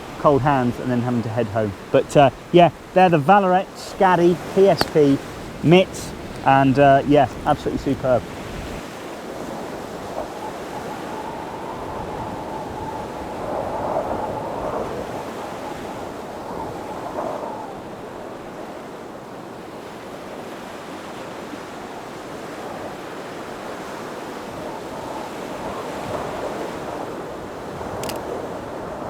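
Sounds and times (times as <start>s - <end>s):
sea surf washing in: 0.0s - 29.0s
wind buffeting microphone: 0.0s - 29.0s
brief click: 28.0s - 28.2s.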